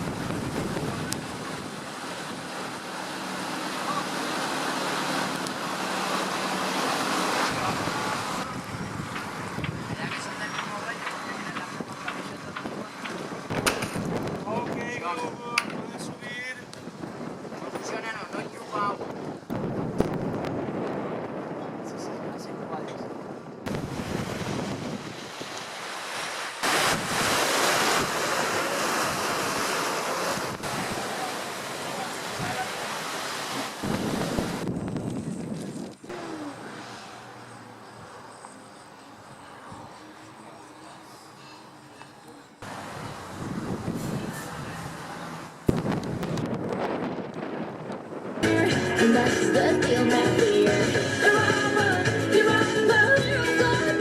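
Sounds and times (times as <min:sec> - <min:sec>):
wind on microphone: 0:00.0 - 0:02.8, 0:07.5 - 0:25.8, 0:26.6 - 0:31.2, 0:33.8 - 0:36.7, 0:42.6 - 0:48.5
rushing water: 0:00.0 - 0:19.3, 0:23.7 - 0:38.2, 0:42.6 - 0:47.6
sea surf washing in: 0:00.0 - 0:22.7, 0:23.7 - 0:37.7, 0:42.6 - 0:54.0.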